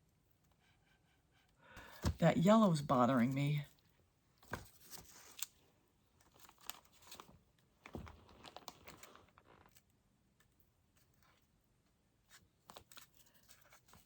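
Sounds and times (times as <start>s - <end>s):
faint crinkling and rustling: 3.4s - 14.0s.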